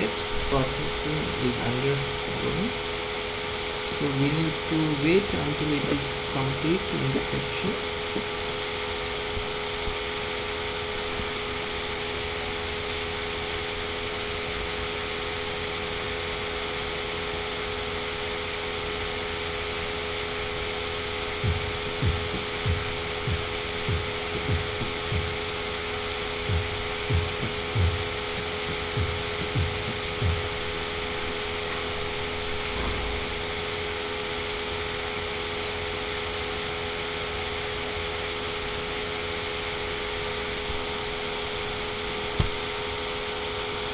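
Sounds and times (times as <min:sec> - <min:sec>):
electrical hum: 0:00.0 - 0:43.9
dull low thumps: 0:21.3 - 0:34.7.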